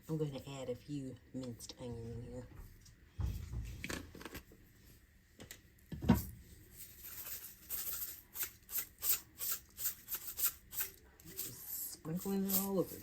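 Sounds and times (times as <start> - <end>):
spice jar rattling shakes: 6.9 - 11.5.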